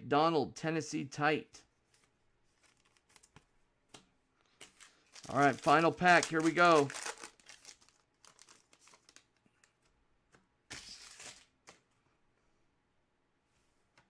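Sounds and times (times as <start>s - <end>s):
wrapper tearing: 4.6s - 9.3s, 10.7s - 11.5s
wrapper crinkling: 4.6s - 9.7s.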